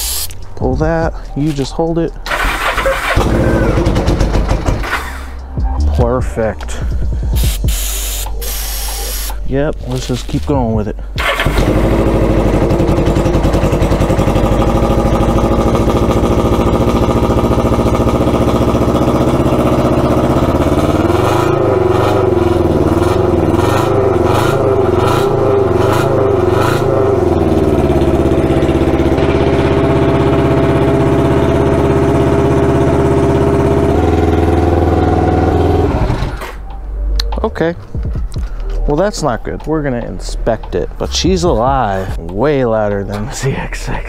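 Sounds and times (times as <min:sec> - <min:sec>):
motorcycle engine revving: 0:02.3 - 0:05.4, 0:11.2 - 0:36.6
engine sharp pops: 0:03.2 - 0:05.2.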